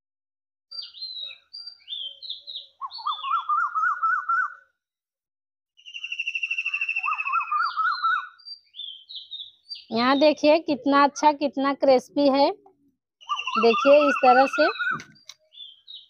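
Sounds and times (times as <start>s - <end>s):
sharp falling bird chirps: 0.8s - 4.6s, 13.2s - 16.0s
quick wavering bird trill: 5.8s - 9.0s, 13.2s - 15.1s.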